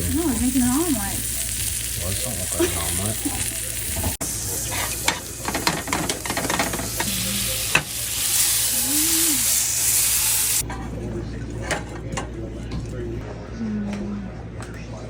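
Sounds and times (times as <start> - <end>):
eggs sizzling in a frying pan: 0.0 - 10.6.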